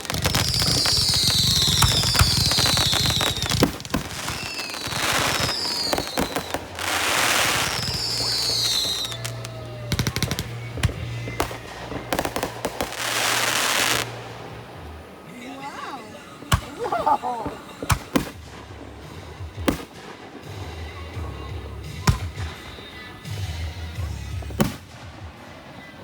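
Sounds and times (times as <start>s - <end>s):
fireworks whistles falling in pitch: 0.0s - 14.6s, 15.3s - 26.0s
fireworks crackling: 0.0s - 26.0s.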